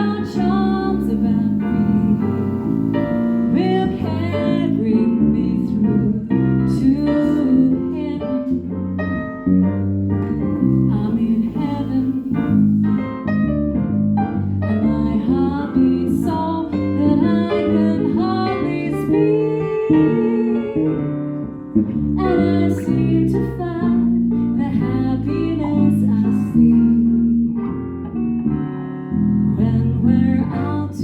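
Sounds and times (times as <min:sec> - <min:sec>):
jazz guitar: 0:00.0 - 0:31.0
jazz trio playing: 0:00.0 - 0:31.0.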